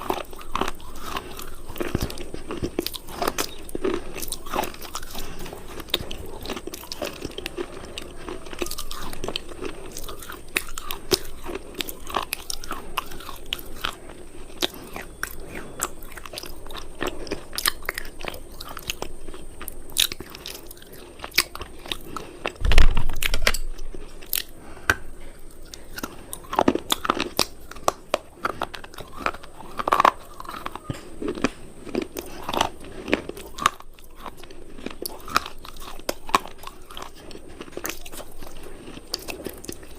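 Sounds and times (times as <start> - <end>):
crunchy food being chewed: 0.0 - 39.9
loud low thump: 22.6 - 23.9.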